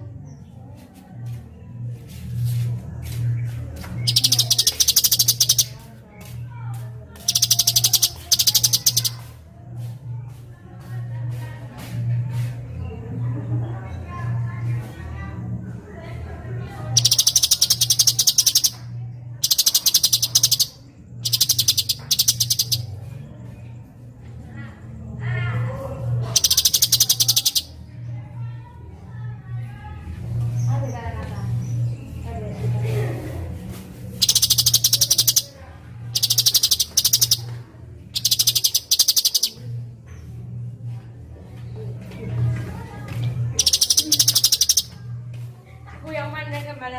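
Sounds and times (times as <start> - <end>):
steady low hum: 0.0 - 46.9
bird chattering trills: 4.0 - 9.3, 17.0 - 23.0, 26.3 - 27.8, 34.2 - 39.7, 43.5 - 45.0.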